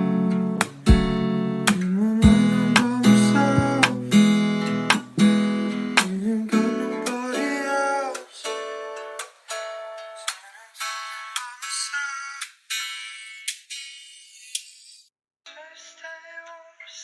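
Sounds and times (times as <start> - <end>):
strummed guitar chords: 0.0 - 13.0.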